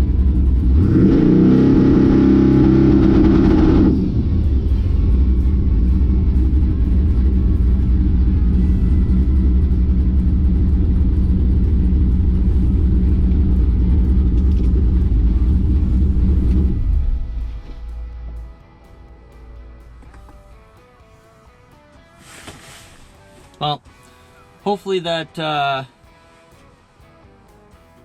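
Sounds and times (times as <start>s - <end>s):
race car engine idling: 0.0s - 20.8s.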